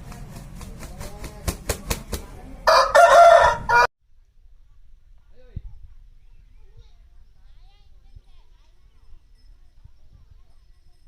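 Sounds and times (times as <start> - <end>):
rooster crowing loudly: 2.7 - 3.9.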